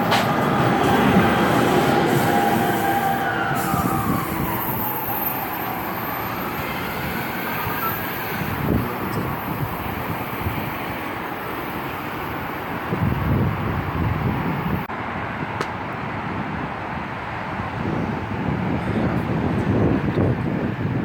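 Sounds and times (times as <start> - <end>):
train running: 0.0 - 14.8.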